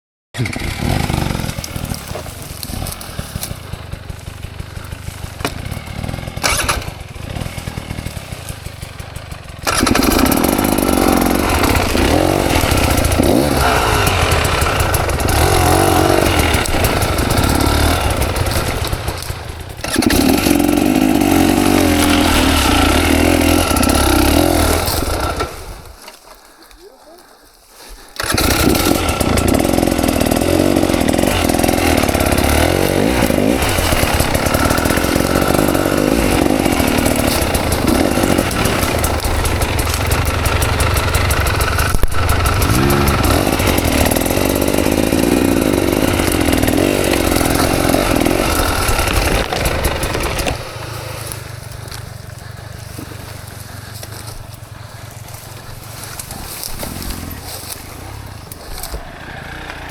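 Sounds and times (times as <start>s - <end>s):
dirt bike engine revving: 0.4s - 26.1s, 28.2s - 59.9s.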